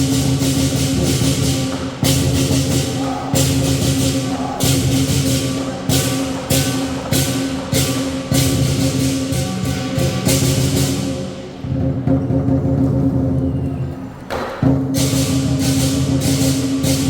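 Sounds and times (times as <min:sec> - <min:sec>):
hand cymbals crashing: 0:00.0 - 0:11.8
large drum beating: 0:00.0 - 0:13.5.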